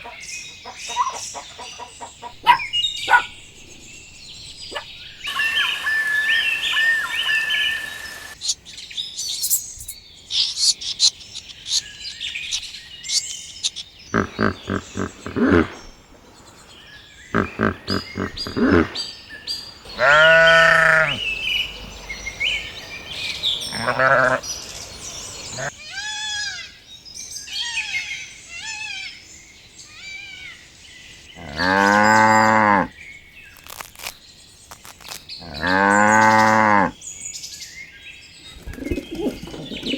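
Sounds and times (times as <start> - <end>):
birds chirping: 0.0 - 25.8, 30.8 - 39.9
animal bleating: 14.2 - 15.8, 17.4 - 19.0, 19.9 - 21.2, 23.7 - 24.4, 31.4 - 32.9, 35.4 - 36.9
cows mooing: 19.9 - 21.2, 31.4 - 32.9, 35.4 - 36.9.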